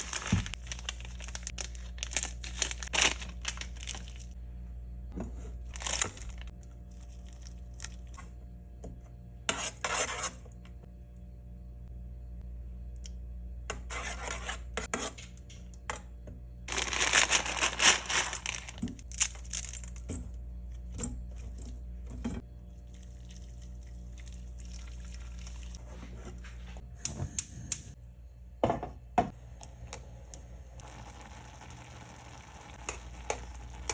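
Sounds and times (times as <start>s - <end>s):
packets tearing and crinkling: 0.0s - 4.3s, 5.7s - 6.5s, 16.7s - 19.8s
steady low hum: 0.0s - 16.8s.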